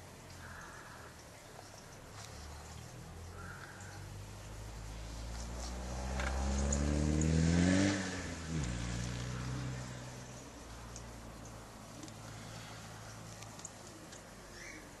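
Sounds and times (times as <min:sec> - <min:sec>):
vehicle engine revving: 0:04.1 - 0:11.2.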